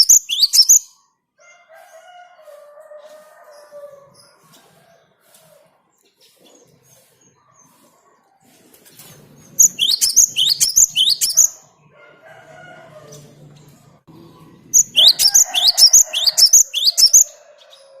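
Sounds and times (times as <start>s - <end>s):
bird singing sharp high notes: 0.0s - 1.0s, 9.6s - 11.6s, 14.8s - 17.3s.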